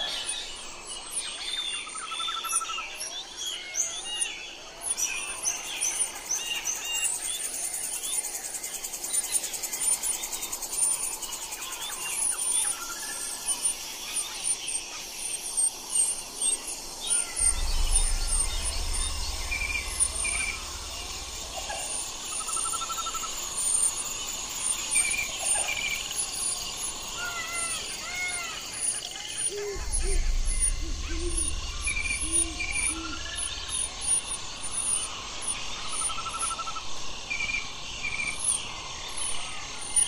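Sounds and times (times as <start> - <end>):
small birds chirping: 0.0 - 40.0
low rumble: 17.3 - 23.6, 29.5 - 35.8.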